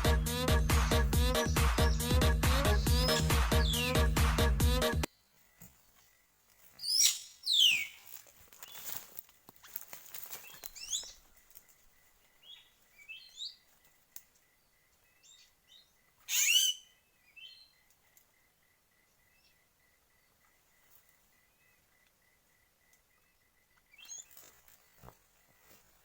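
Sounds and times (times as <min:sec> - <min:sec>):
birds chirping: 0:00.0 - 0:09.0, 0:10.4 - 0:13.9, 0:15.0 - 0:17.9
bird call sweeping downward: 0:01.5 - 0:04.5, 0:06.8 - 0:08.0.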